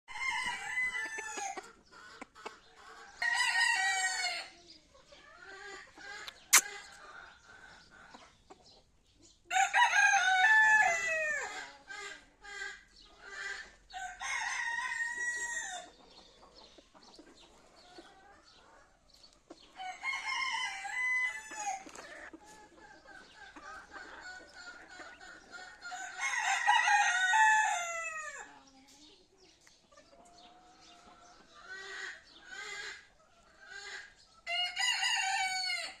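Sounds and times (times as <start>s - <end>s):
rooster crowing: 0.1s - 1.6s, 3.2s - 4.5s, 9.5s - 11.5s, 14.0s - 15.9s, 19.8s - 21.9s, 25.9s - 28.4s, 34.5s - 36.0s
soft clucking: 4.9s - 9.3s.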